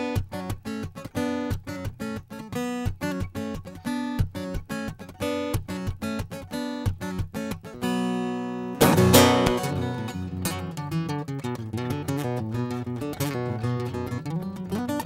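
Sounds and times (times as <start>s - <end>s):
acoustic guitar picking: 0.0s - 15.0s
strummed guitar chord: 8.4s - 11.0s.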